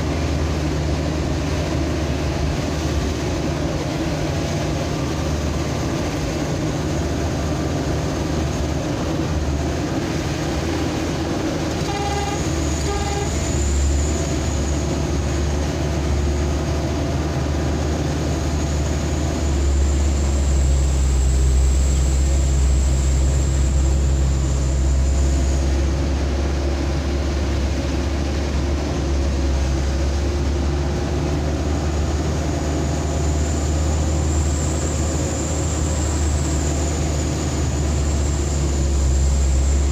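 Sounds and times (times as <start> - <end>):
vehicle engine and road noise: 0.0 - 39.9
car horn beeps: 11.8 - 13.4.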